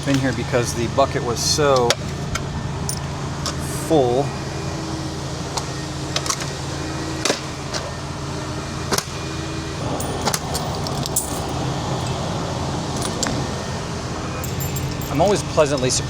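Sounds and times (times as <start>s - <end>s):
coins clinking and clattering: 0.0s - 0.4s, 9.8s - 11.7s, 13.0s - 13.4s, 14.4s - 15.5s.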